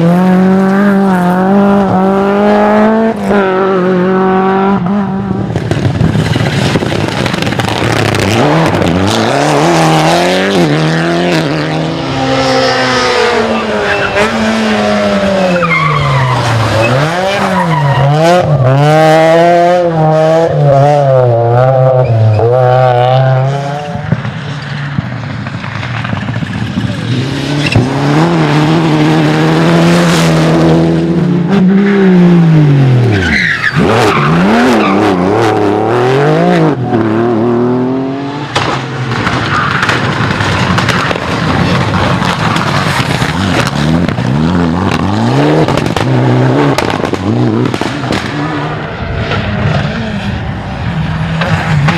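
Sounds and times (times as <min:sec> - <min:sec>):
rally car engines revving: 0:00.0 - 0:51.9
tyre squeal: 0:13.2 - 0:14.4, 0:15.2 - 0:18.6, 0:33.0 - 0:35.4.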